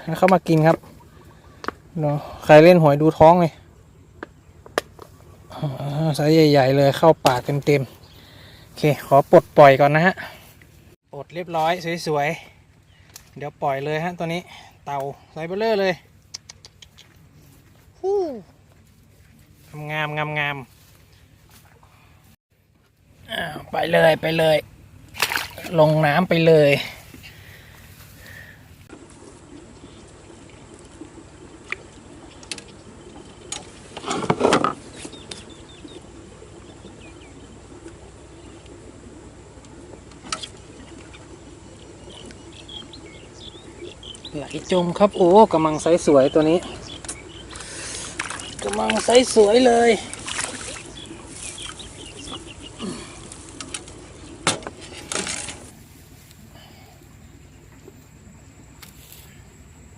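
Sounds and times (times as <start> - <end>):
birds chirping: 0.0 - 22.4, 23.0 - 59.9
sharp clicks: 16.3 - 17.2
faint bird chirps: 39.9 - 54.9.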